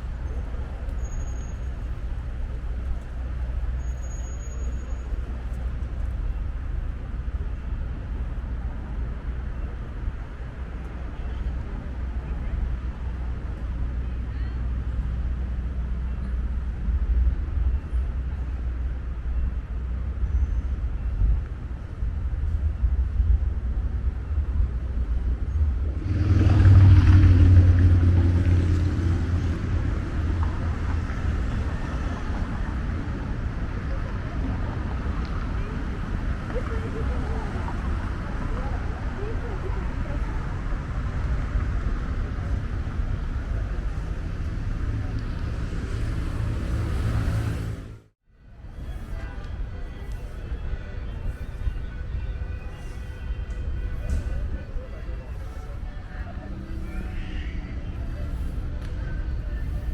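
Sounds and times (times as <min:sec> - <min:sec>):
street traffic rumble: 0:00.0 - 0:59.9
motor vehicle passing close: 0:25.7 - 0:32.5.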